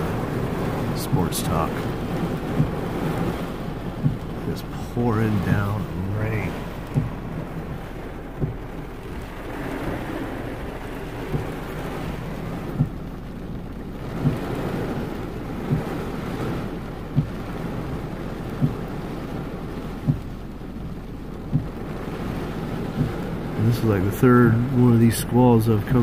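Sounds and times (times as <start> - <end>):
heavy rain on a car: 0.0 - 26.0
short low thump: 6.5 - 10.3, 11.2 - 13.0.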